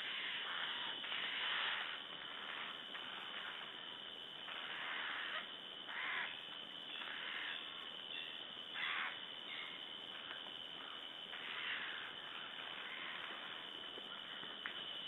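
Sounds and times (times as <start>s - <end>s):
jay rasping screech calls: 0.0s - 3.7s, 4.5s - 6.4s, 8.8s - 9.7s, 11.4s - 13.4s.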